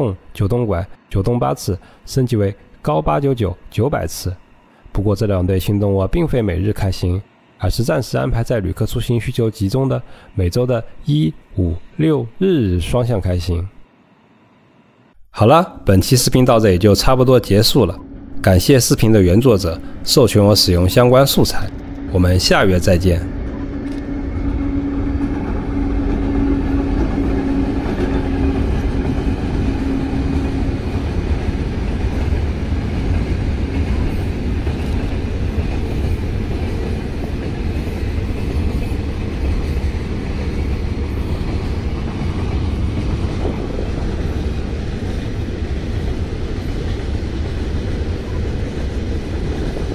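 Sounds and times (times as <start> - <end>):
diesel locomotive engine: 0.0 - 49.9
freight wagons rumbling by: 16.6 - 49.9.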